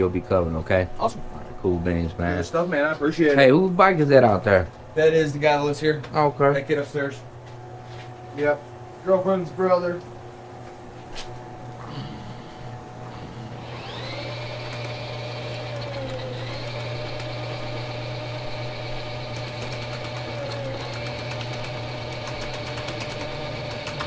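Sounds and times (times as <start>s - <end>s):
constant low hum: 0.0s - 24.0s
drain-cleaning machine motor: 12.6s - 24.0s
rapid ticking: 13.8s - 24.0s.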